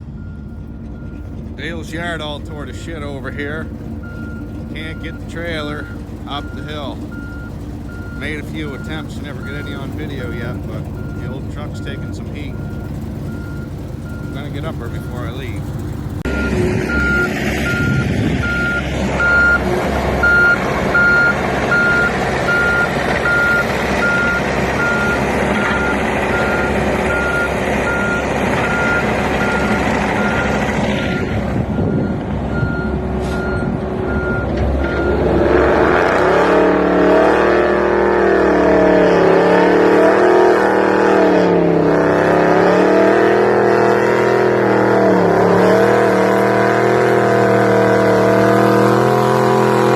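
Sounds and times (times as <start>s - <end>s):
reversing alarm beeping: 0.0s - 35.3s
truck engine running: 0.0s - 49.9s.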